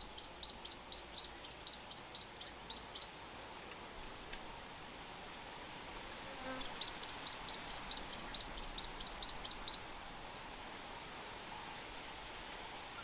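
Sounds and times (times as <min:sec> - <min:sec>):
small bird high chirps: 0:00.0 - 0:03.1, 0:06.6 - 0:09.8.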